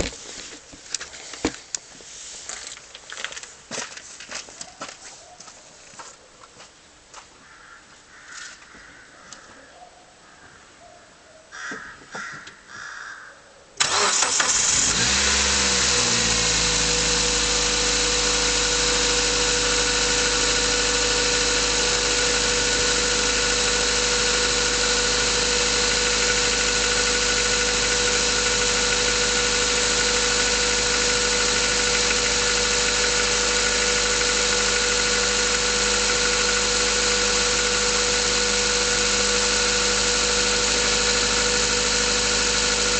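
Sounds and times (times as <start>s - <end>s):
car engine starting and idling: 13.8s - 42.9s.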